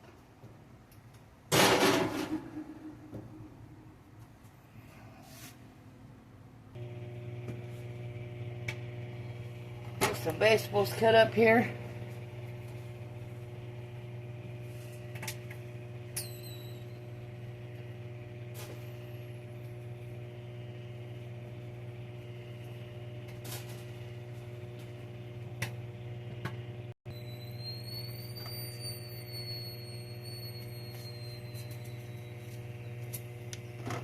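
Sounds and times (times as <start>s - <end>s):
faint high whine: 27.1s - 33.2s.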